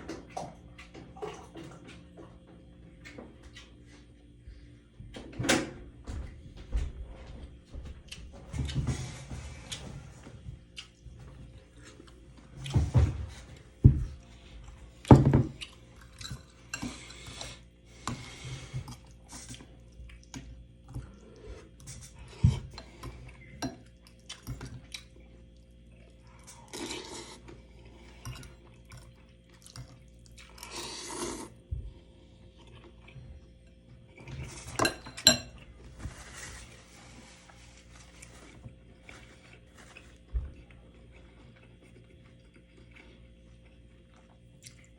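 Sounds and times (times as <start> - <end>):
cutlery clinking on dishes: 34.6 - 35.6.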